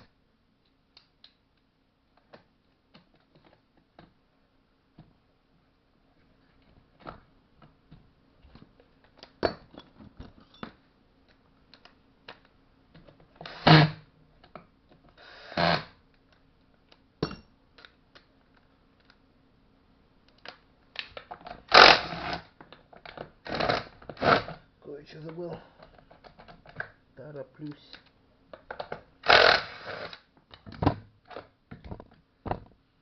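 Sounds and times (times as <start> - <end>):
tools and parts clicking and knocking: 7.0 - 13.4, 16.9 - 19.2, 27.8 - 32.8.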